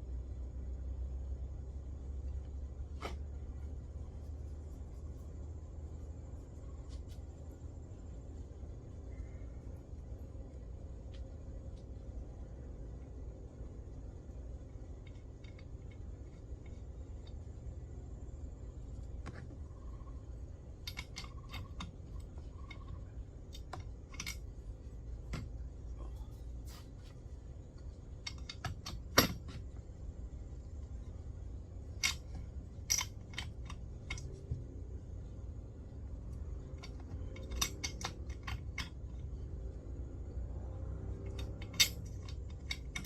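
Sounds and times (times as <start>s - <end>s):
metallic clicks of hand tools: 20.8s - 24.5s, 28.2s - 29.6s, 32.0s - 34.5s, 36.7s - 39.3s, 41.2s - 43.0s.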